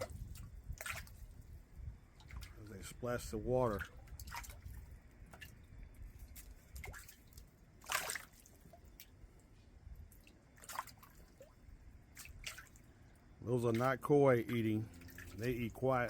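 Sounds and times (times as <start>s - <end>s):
fish splashing at water surface: 0.0s - 1.5s, 3.7s - 9.2s, 10.1s - 15.8s.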